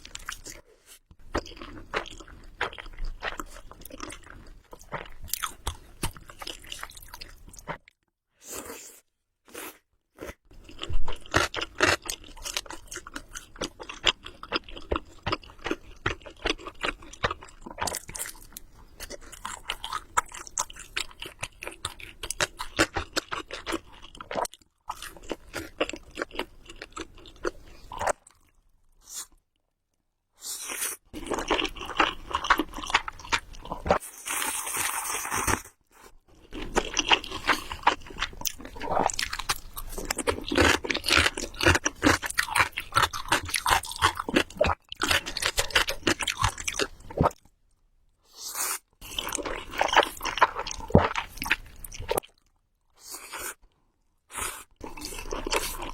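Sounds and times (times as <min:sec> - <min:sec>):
close chewing with wet mouth clicks: 0:10.6 - 0:28.6, 0:36.5 - 0:47.4, 0:49.0 - 0:52.5, 0:54.4 - 0:55.9.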